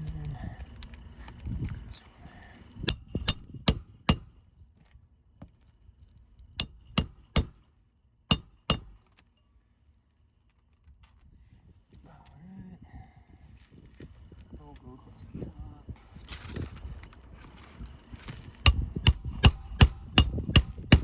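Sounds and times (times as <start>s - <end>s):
hammer driving nails into shingle: 2.9s - 4.6s, 6.6s - 7.6s, 8.3s - 9.0s, 18.7s - 21.0s.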